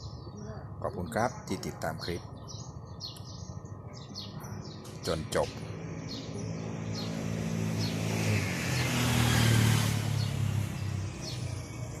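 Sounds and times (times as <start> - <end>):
bird chirps: 0.0 - 8.2
vehicle engine passing: 5.5 - 12.0.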